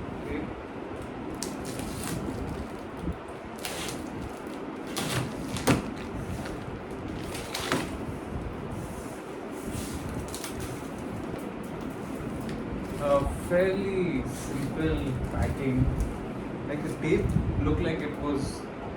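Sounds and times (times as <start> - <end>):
cardboard box scraping and rustling: 3.6 - 11.2, 12.0 - 13.7.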